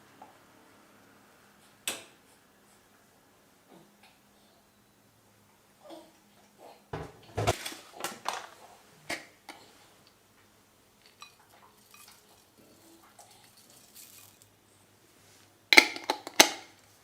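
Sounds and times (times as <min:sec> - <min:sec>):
dishes and cutlery clattering: 0:11.0 - 0:14.5.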